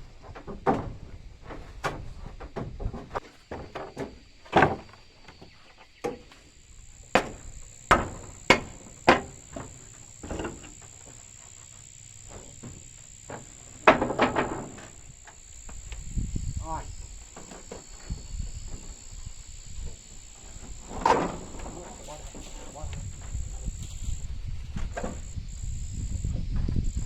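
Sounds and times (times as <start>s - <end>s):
high-pitched insect drone: 5.4s - 27.0s
hammer blows on wood: 7.0s - 11.2s.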